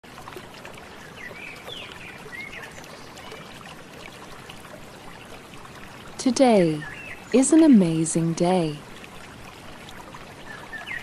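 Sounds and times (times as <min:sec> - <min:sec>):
trickling stream water: 0:00.0 - 0:11.0.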